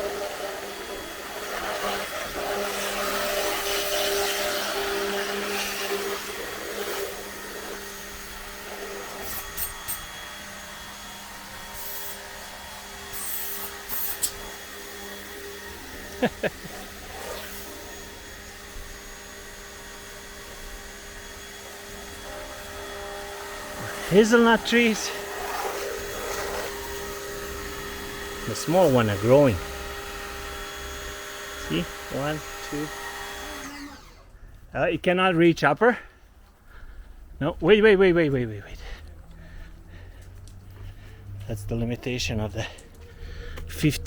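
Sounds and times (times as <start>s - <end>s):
pressure washer motor hum: 0.0s - 34.4s
water jet hissing: 11.6s - 14.6s, 22.7s - 32.9s.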